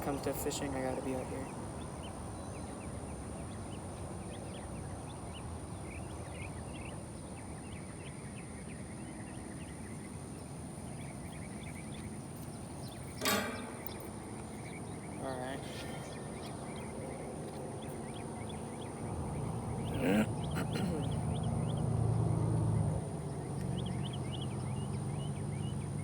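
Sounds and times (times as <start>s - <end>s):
bird chirps: 0.0s - 26.0s
sharp click: 13.2s - 14.2s.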